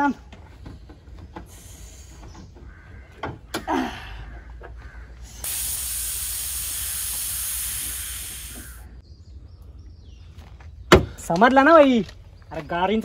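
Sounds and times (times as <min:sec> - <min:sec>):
steam hissing: 0:05.4 - 0:09.0.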